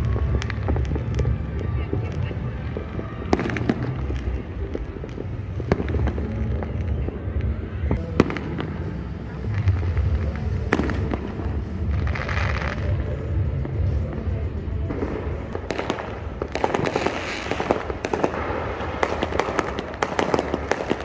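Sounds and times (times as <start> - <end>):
low booming fireworks rumble: 0.0 - 21.0
sharp firework cracks: 14.8 - 21.0.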